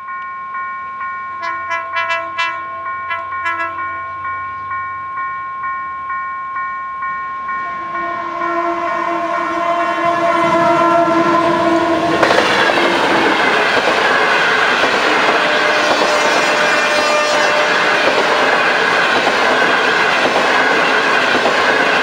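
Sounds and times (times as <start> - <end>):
level-crossing warning bell: 0.0 - 22.0
train passing with wheel noise: 0.0 - 22.0
train horn blast: 1.4 - 4.2, 7.6 - 13.0, 15.1 - 18.6.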